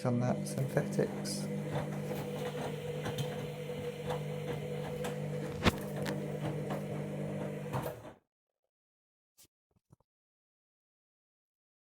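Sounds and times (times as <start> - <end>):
washing machine motor hum: 0.0 - 8.2.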